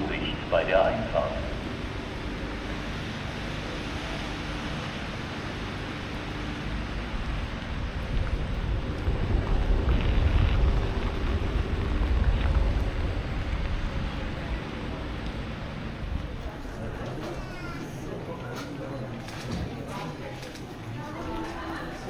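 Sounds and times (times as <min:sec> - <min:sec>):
train rumbling: 0:00.0 - 0:22.0
wind noise on microphone: 0:06.6 - 0:16.6.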